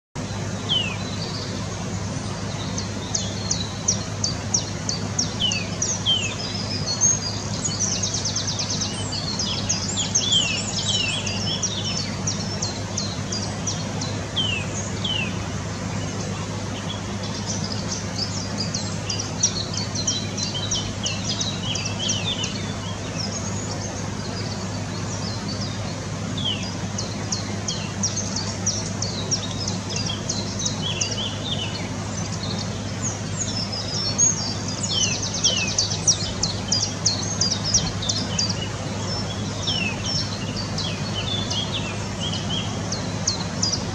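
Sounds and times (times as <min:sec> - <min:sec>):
songbirds chirping and whistling: 0:00.2 - 0:43.9
steady low hum: 0:00.2 - 0:43.9
bird trill: 0:16.8 - 0:43.9.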